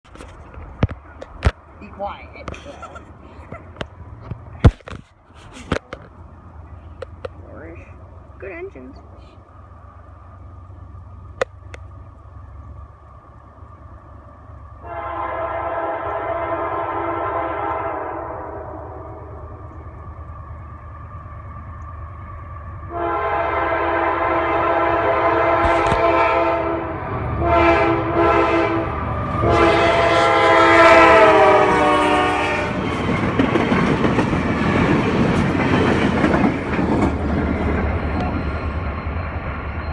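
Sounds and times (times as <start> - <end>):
train rumbling and clattering past: 0.0 - 39.9
locomotive horn blasts: 14.8 - 19.7, 22.9 - 33.0.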